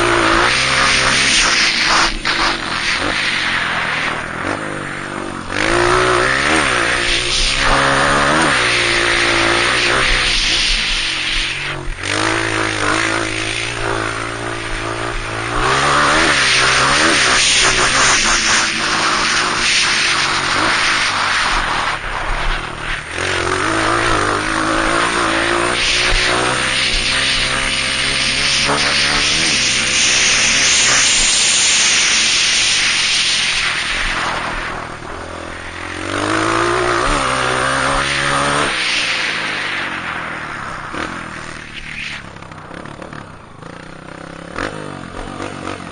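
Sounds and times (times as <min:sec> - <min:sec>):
dirt bike engine revving: 0:00.0 - 0:45.9
loud rushing noise: 0:00.0 - 0:45.9.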